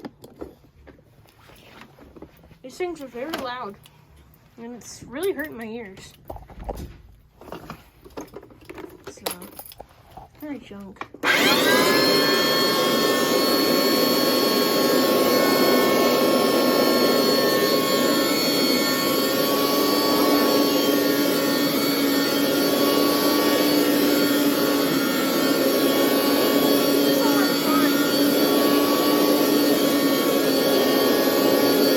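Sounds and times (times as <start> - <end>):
carpet washer motor whining: 11.2 - 31.9.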